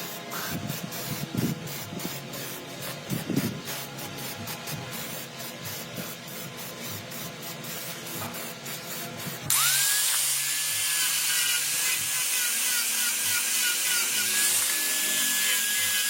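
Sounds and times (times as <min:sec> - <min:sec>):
small power tool whining: 0:09.5 - 0:16.0.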